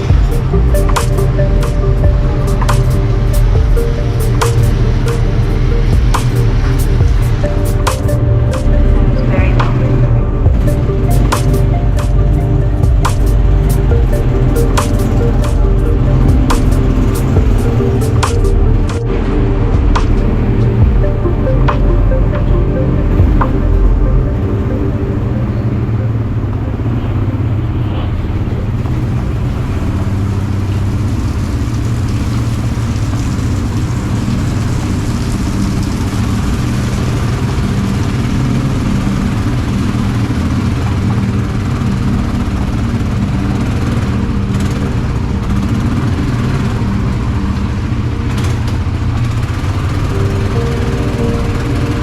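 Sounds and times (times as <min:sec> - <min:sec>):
quad bike engine running: 0:00.0 - 0:52.0
road and wind noise: 0:00.0 - 0:52.0.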